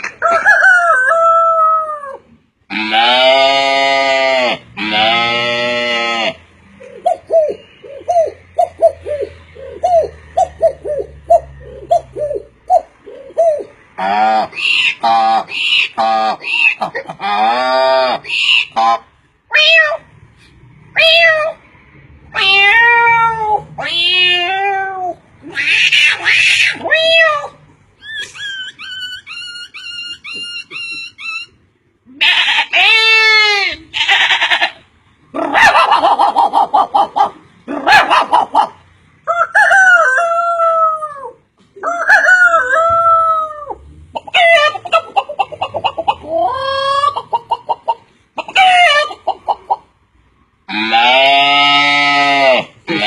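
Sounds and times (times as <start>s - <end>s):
man imitating bird calls: 6.8s - 18.8s.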